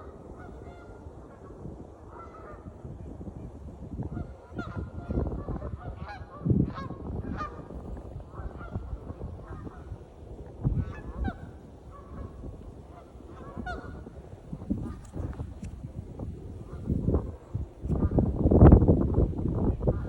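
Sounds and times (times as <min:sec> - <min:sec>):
geese honking: 0:10.8 - 0:14.2.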